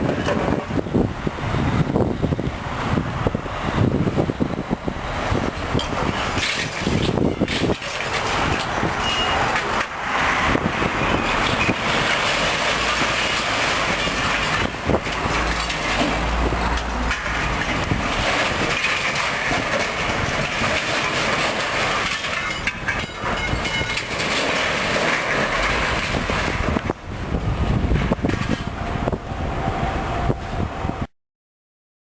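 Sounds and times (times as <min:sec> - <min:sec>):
scrap metal clattering and scraping: 0:05.2 - 0:28.9
truck engine running: 0:10.5 - 0:28.0
heavy low rumble: 0:12.9 - 0:18.8.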